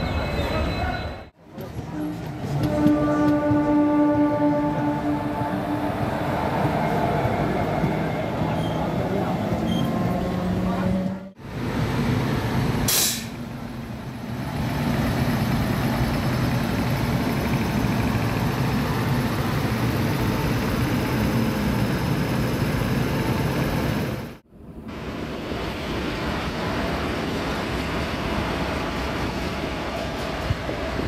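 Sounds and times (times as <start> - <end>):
locomotive wheels rumbling on rails: 0.0 - 24.4.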